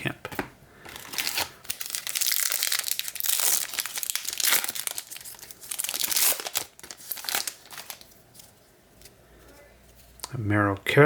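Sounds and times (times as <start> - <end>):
wrapper tearing and crinkling: 0.9 - 8.1.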